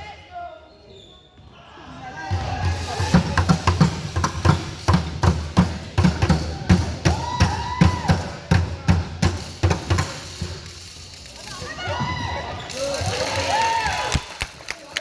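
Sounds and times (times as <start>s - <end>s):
basketball dribbling on gym floor: 2.3s - 7.2s.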